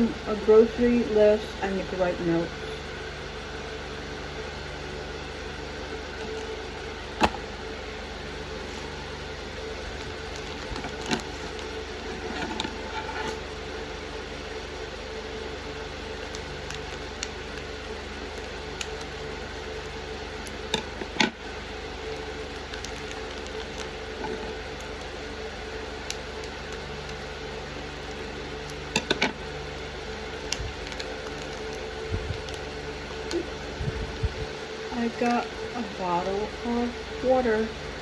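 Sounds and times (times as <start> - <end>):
room hum: 0.0 - 38.0
plastic packaging crinkling: 9.8 - 13.4, 22.2 - 24.0, 30.3 - 33.5.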